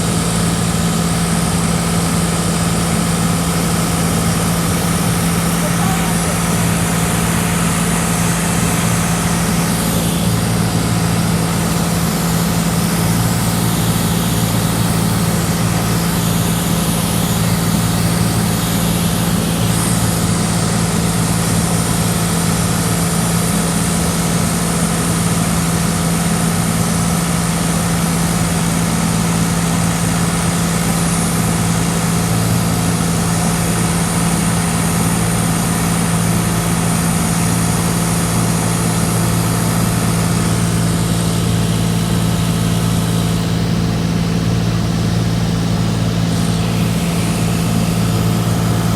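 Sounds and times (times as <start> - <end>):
propeller plane engine droning: 0.0 - 48.9.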